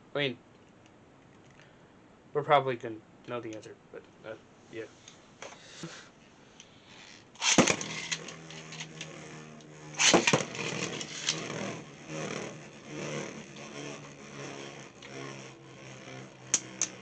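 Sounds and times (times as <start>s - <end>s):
spinning tops whirring: 6.9s - 17.0s
spinning tops clashing: 7.4s - 9.4s, 10.0s - 11.8s
knocks and scrapes: 7.4s - 17.0s.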